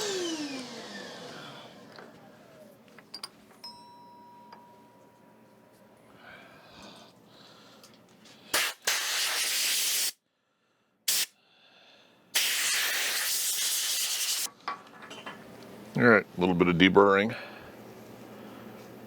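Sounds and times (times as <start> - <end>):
compressed air blowgun hissing: 8.5 - 10.2, 11.1 - 11.4, 12.3 - 14.5.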